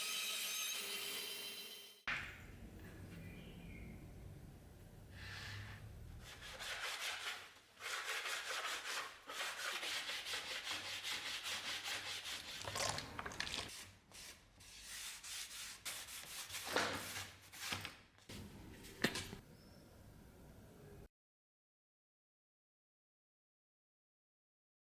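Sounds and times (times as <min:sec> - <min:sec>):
hand sanding strokes: 0:06.2 - 0:12.6, 0:14.2 - 0:17.7.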